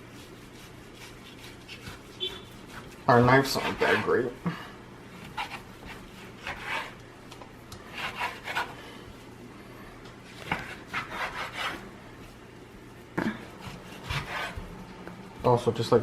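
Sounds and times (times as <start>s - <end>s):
knife sawing through raw meat: 0.0s - 4.3s, 5.3s - 7.0s, 7.9s - 8.8s, 10.7s - 11.8s, 13.6s - 14.7s.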